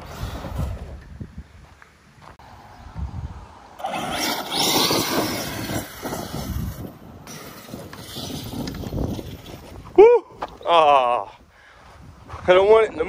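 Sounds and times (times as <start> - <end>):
electric rc truck driving: 0.0 - 1.2, 3.7 - 9.8
tyres churning dirt: 0.0 - 2.5, 3.7 - 10.8.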